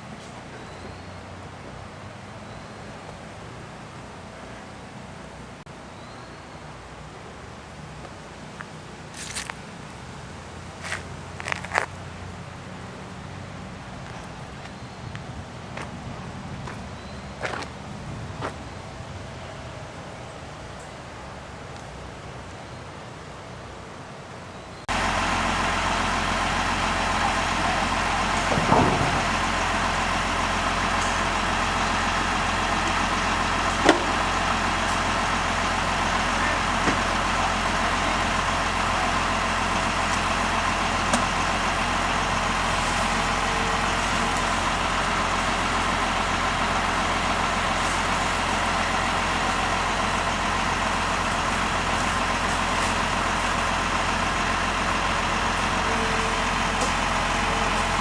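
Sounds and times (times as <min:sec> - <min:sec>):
engine idling: 0:24.9 - 0:58.0.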